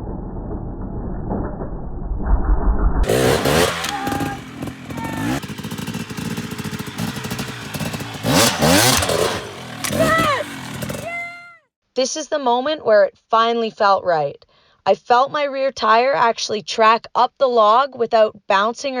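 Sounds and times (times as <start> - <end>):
two-stroke dirt bike engine revving: 3.0 - 11.6.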